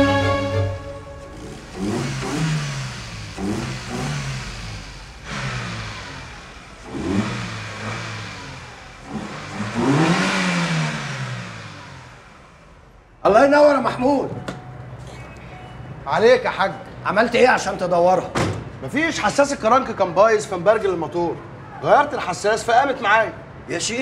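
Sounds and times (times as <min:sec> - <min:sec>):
car engine revving: 0:00.8 - 0:13.2.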